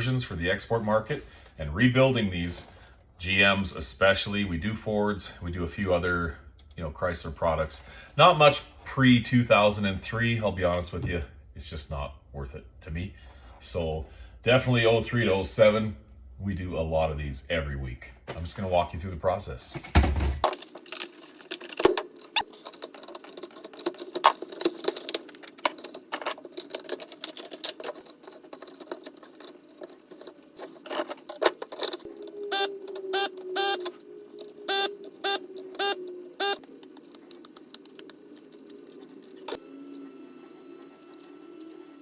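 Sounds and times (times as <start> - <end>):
small parts clattering: 19.7 - 32.1
faint electronic tone: 32.4 - 36.7
short electronic beeps: 34.7 - 36.6.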